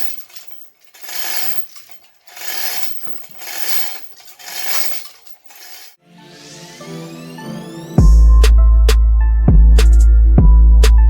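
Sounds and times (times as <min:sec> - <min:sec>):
ratchet wrench clicking: 0:00.0 - 0:06.0.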